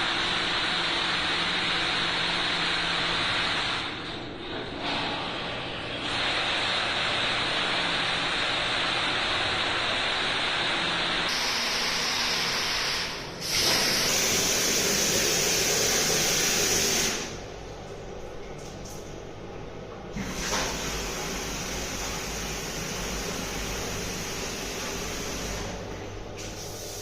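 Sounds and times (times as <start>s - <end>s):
water rushing from a pipe: 6.0s - 17.4s, 20.2s - 25.7s.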